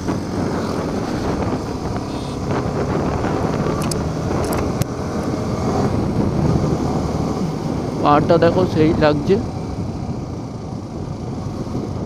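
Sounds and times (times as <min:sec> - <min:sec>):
motorcycle engine running: 0:00.0 - 0:12.0
sharp clicks: 0:03.7 - 0:04.9.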